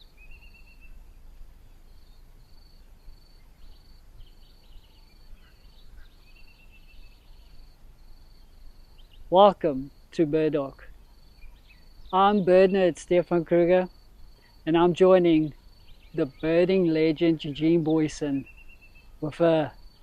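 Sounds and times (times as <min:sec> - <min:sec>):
whistled bird notes: 0:00.0 - 0:01.0, 0:18.3 - 0:19.2
bird chirps: 0:00.0 - 0:01.2, 0:01.9 - 0:20.0.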